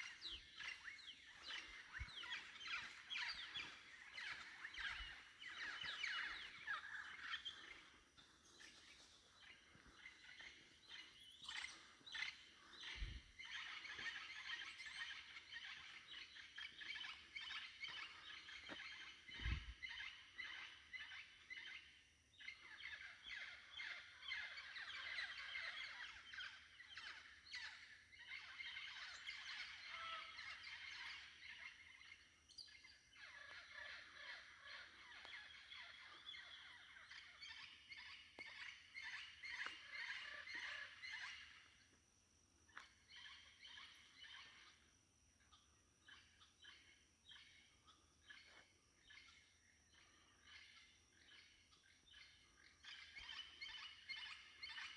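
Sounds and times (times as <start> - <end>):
rainforest birds calling: 0.0 - 41.6.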